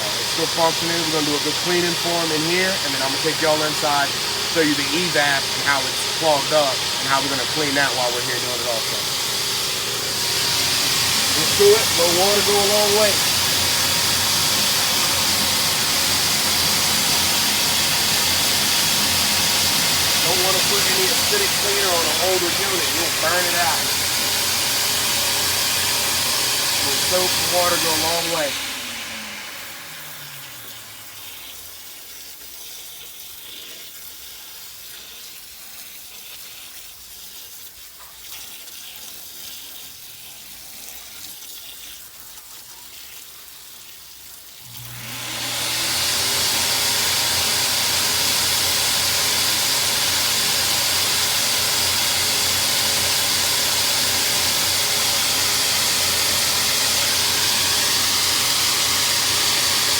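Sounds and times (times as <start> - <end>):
water spray hissing: 0.0 - 25.5, 26.8 - 28.5
sprayer motor humming: 0.0 - 31.6, 44.7 - 59.9.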